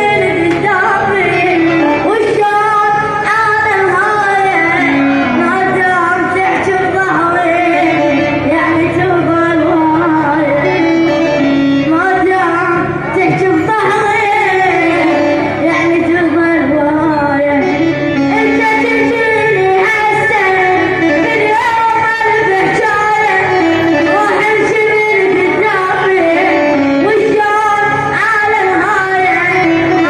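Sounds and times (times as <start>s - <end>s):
instrumental accompaniment: 0.0s - 30.0s.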